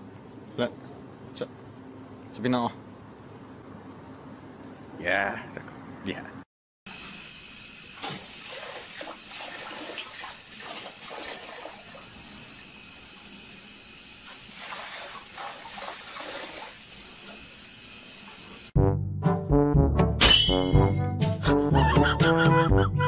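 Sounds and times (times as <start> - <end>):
insects chirring: 6.9 - 18.8
water splashing into metal bucket: 8.0 - 12.6, 14.3 - 17.3.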